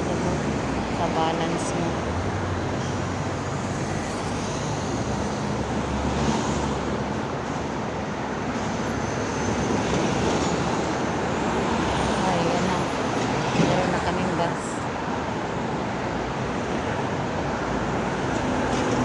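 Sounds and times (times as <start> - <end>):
vehicle engines humming: 0.0 - 14.8
road noise: 0.0 - 19.0.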